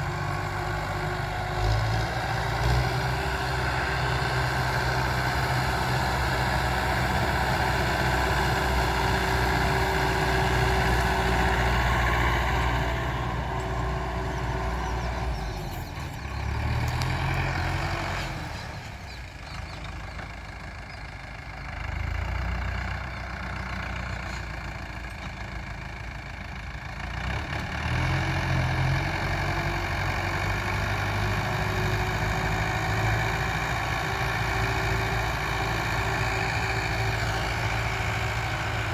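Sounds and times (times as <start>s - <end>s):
diesel tiller engine running: 0.0s - 38.9s.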